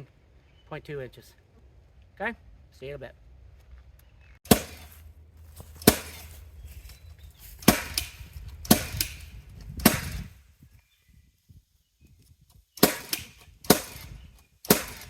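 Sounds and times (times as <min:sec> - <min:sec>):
nailer firing shots: 0:04.5 - 0:05.0, 0:05.8 - 0:06.3, 0:07.6 - 0:10.3, 0:12.8 - 0:15.0.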